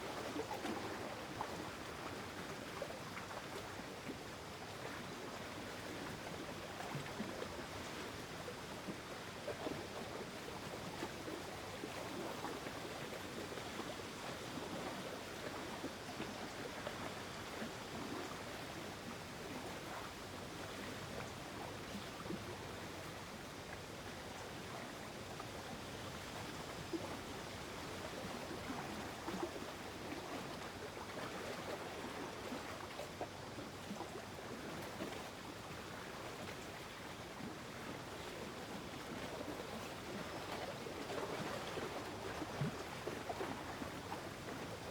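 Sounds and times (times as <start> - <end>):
soft wash of water: 0.0 - 44.9
small water splashes: 26.9 - 44.9.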